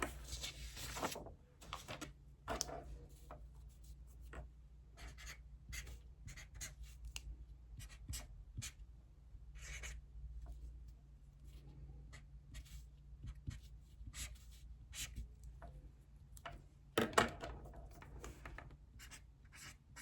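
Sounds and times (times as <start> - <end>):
pen scratching on paper: 5.0 - 6.9, 9.6 - 10.0, 19.0 - 20.0.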